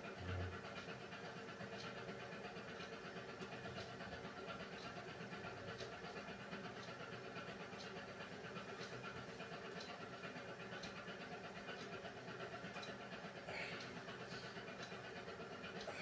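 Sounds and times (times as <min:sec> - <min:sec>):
washing machine motor hum: 0:15.1 - 0:16.0.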